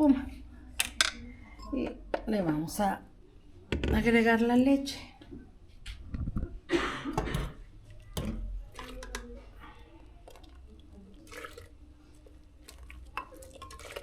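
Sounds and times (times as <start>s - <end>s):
milk pouring into a pot: 7.9s - 14.0s.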